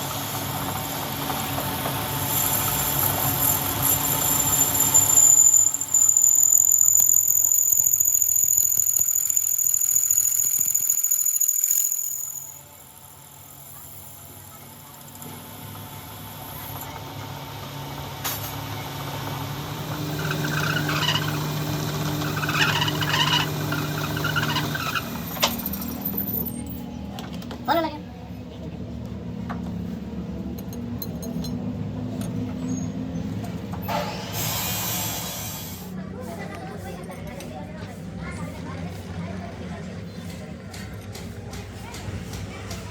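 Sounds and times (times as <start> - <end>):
machinery high whine: 0.0 - 13.6
low machinery hum: 12.3 - 42.9
loud hiss: 33.9 - 35.9.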